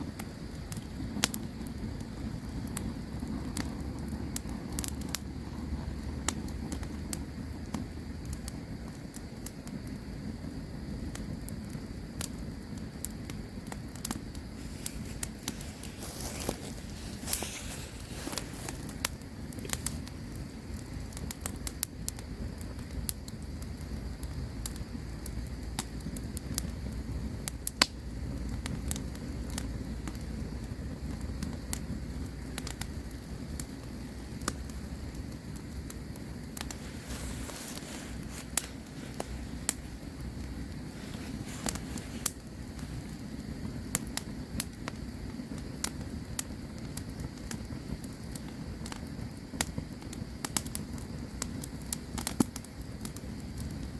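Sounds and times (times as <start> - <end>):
burning wood popping and snapping: 0.0 - 53.9
low rush of flames: 0.0 - 53.9.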